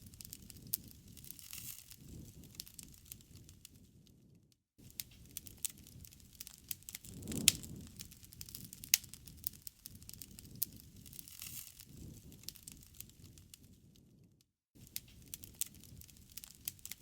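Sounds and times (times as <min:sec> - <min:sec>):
low rumble of flame: 0:00.0 - 0:17.0
wood fire crackling and popping: 0:00.0 - 0:17.0.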